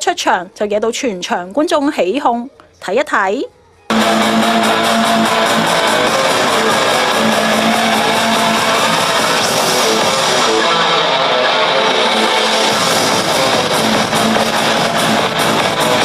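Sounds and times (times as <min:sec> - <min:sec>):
live concert music: 0:03.9 - 0:16.0
strummed electric guitar: 0:03.9 - 0:16.0.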